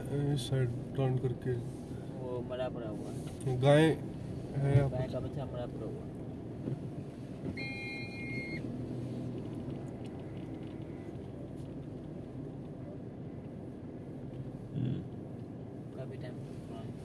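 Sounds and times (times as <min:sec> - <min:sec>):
car engine rumbling: 0:00.0 - 0:17.0
electronic beep: 0:07.6 - 0:08.6.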